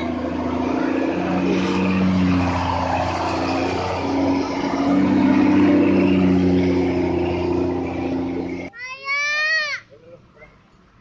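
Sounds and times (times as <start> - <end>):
truck engine running under load: 0.0 - 8.7.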